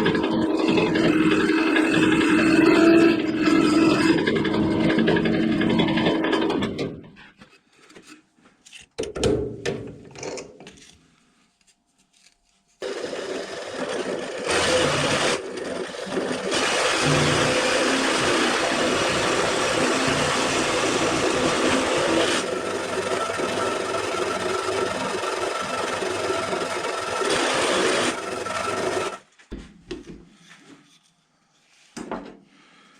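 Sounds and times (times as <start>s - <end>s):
power tool grinding: 0.0s - 7.1s, 12.8s - 29.2s.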